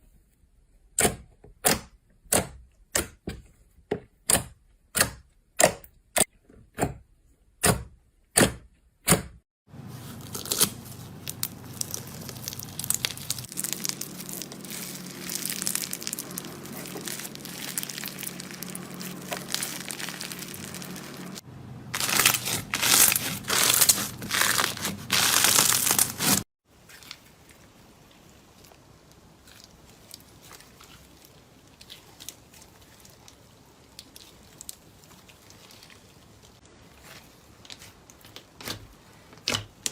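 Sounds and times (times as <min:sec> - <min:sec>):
slime crackling when squeezed: 0:10.3 - 0:21.4, 0:22.0 - 0:26.4
slime popping: 0:10.4 - 0:21.4.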